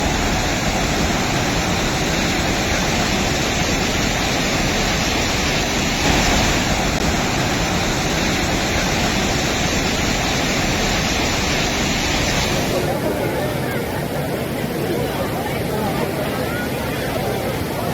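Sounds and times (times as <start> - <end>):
floodwater rushing: 0.0 - 17.9.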